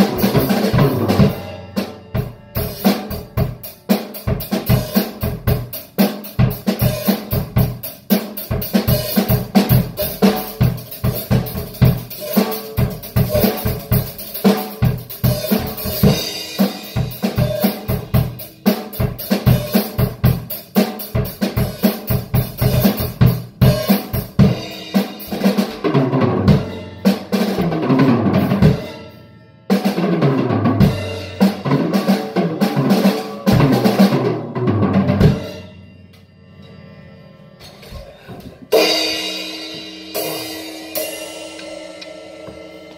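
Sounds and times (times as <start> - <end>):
drum kit groove: 0.0 - 36.1, 37.5 - 42.9.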